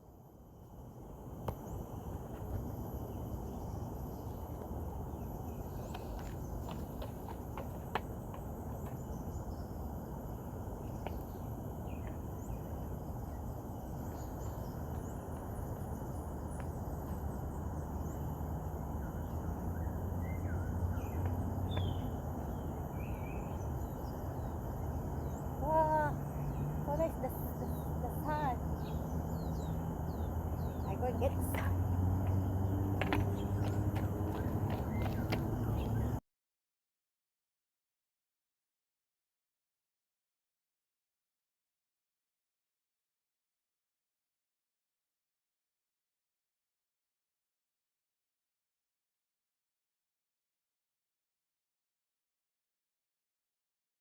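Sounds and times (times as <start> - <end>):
high insect drone: 0.3 - 36.2.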